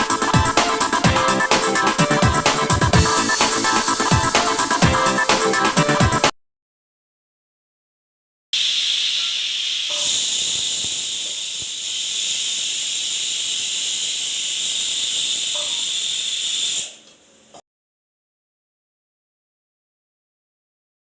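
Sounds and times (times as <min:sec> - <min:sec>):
loud steady hiss: 0:08.6 - 0:17.6.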